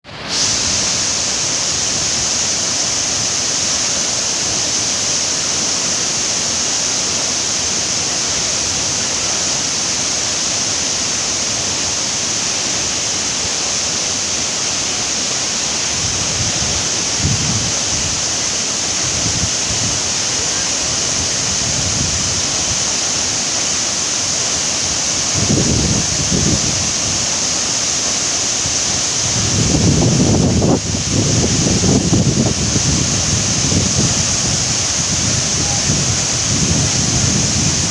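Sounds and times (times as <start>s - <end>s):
waterfall rushing: 0.0s - 37.9s
wind buffeting microphone: 15.9s - 18.3s, 25.3s - 27.2s, 29.2s - 37.9s.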